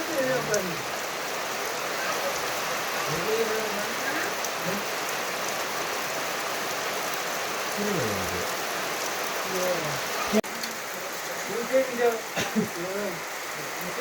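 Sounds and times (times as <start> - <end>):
steady rain falling: 0.0 - 14.0
faint pitched sounds: 7.8 - 8.6.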